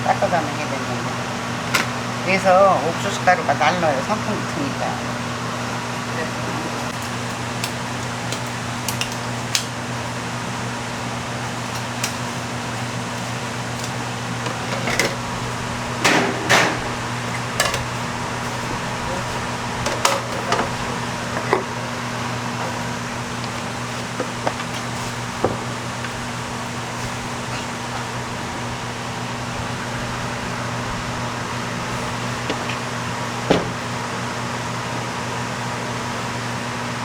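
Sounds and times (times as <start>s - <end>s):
electric fan humming: 0.0s - 37.0s
kitchen work knocks and clatter: 1.7s - 1.9s, 13.8s - 15.3s, 16.0s - 18.7s, 19.3s - 21.7s, 23.4s - 26.3s, 33.4s - 33.9s.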